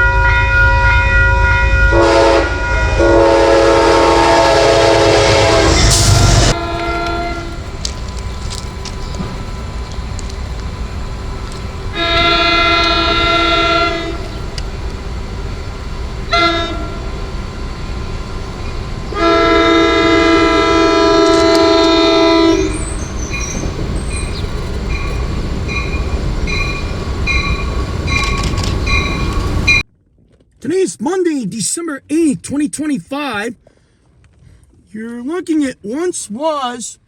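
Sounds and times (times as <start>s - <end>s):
crossing bell ringing: 0.0s - 3.0s, 3.6s - 29.8s
train air horn blasts: 0.0s - 8.8s, 10.8s - 29.8s
low rumble of train: 0.0s - 29.9s.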